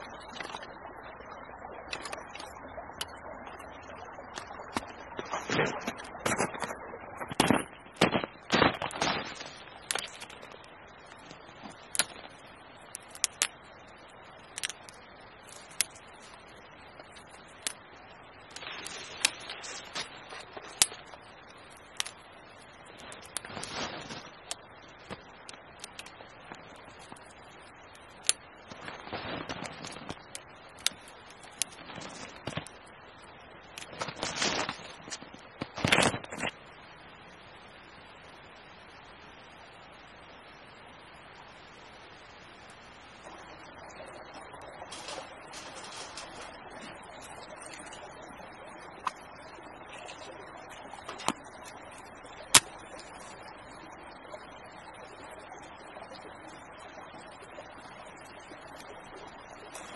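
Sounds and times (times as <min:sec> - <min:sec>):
faint steady hiss: 0:00.0 - 0:59.9
campfire crackling and popping: 0:01.8 - 0:36.6, 0:44.4 - 0:53.7.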